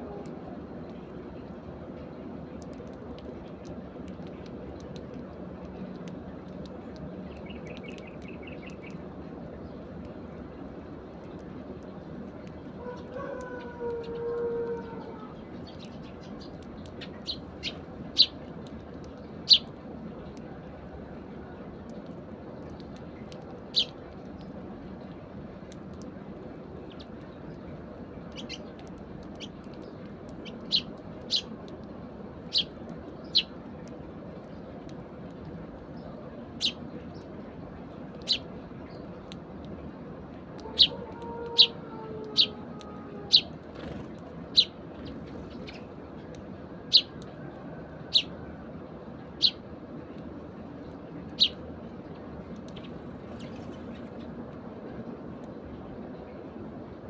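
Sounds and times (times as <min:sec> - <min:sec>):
low background noise: 0:00.0 - 0:57.0
sparrows chirping: 0:07.3 - 0:09.0, 0:14.8 - 0:18.5, 0:19.2 - 0:19.7, 0:23.6 - 0:24.0, 0:28.3 - 0:31.5, 0:32.4 - 0:33.6, 0:35.9 - 0:37.3, 0:38.2 - 0:39.1, 0:40.7 - 0:41.7, 0:42.3 - 0:42.6, 0:43.3 - 0:46.0, 0:46.9 - 0:47.1, 0:48.1 - 0:48.3, 0:49.3 - 0:49.6, 0:51.3 - 0:51.6.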